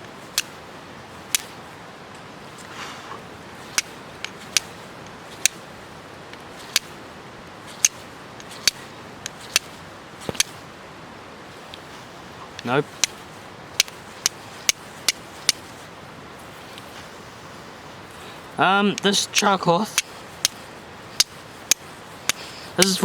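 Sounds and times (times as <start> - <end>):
steel striker scraping rock: 2.5 - 5.7, 6.4 - 7.0, 7.6 - 10.6, 11.6 - 17.3, 18.1 - 23.0.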